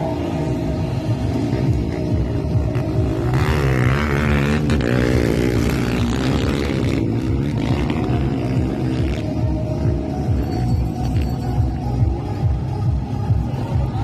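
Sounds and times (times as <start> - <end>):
dirt bike engine running: 0.8 - 9.3.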